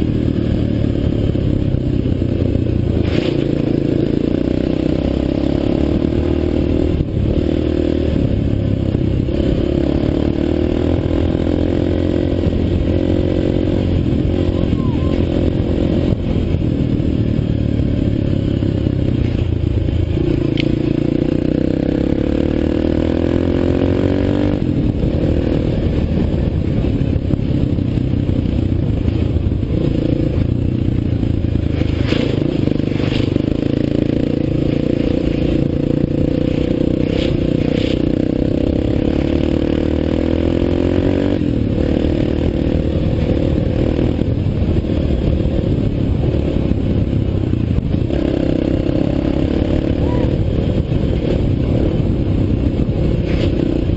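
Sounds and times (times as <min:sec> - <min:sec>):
dirt bike engine running: 0:00.0 - 0:53.9.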